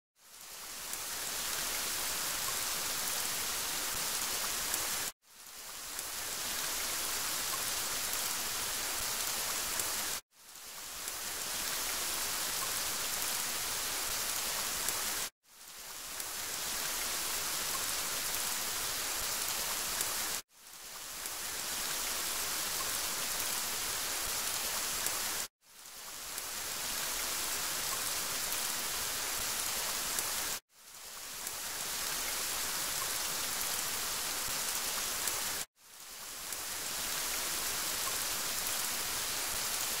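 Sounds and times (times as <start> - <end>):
rain hissing: 0.2 - 40.0.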